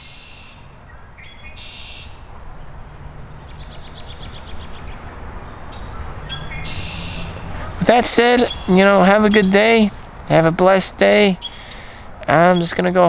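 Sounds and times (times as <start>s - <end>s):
songbird calls: 0.0s - 2.3s, 3.4s - 10.4s, 11.3s - 13.0s.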